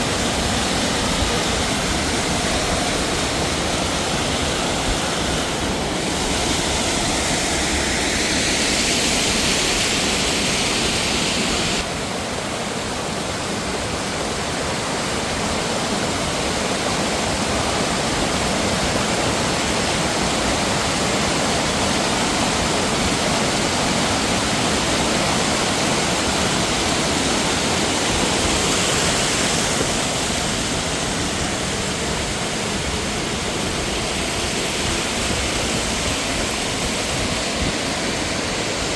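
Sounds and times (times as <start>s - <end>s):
rushing mountain water: 0.0s - 38.9s.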